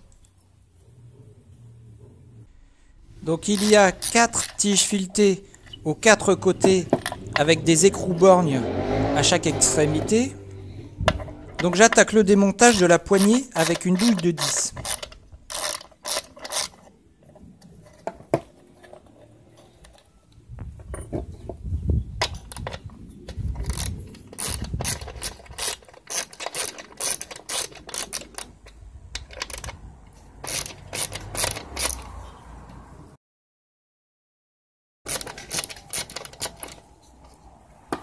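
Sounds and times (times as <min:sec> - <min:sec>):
sharp metal clicks: 0:03.4 - 0:05.9, 0:10.5 - 0:16.9, 0:22.2 - 0:29.8, 0:30.4 - 0:32.2, 0:35.1 - 0:36.9
ratchet wrench clicking: 0:03.5 - 0:04.9, 0:12.6 - 0:16.8, 0:23.6 - 0:29.8, 0:30.4 - 0:32.2, 0:35.1 - 0:36.8.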